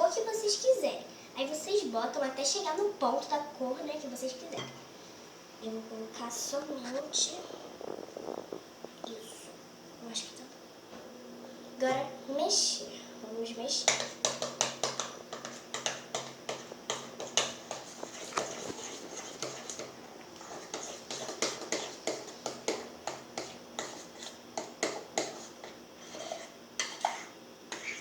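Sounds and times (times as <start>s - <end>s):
utensil stirring thick mixture: 13.8s - 28.0s.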